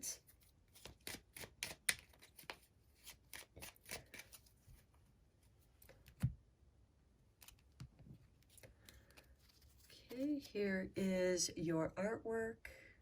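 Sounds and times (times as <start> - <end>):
cards shuffling: 0.2 - 4.9, 7.4 - 10.6.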